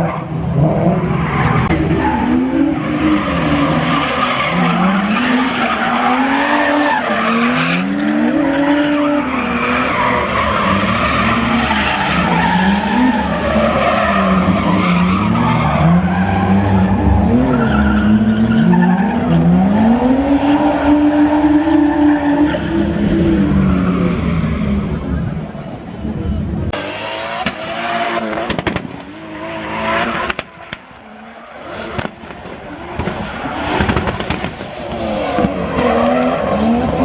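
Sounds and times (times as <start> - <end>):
tyres skidding and squealing: 0.0 - 37.0
car engine revving: 26.7 - 37.0.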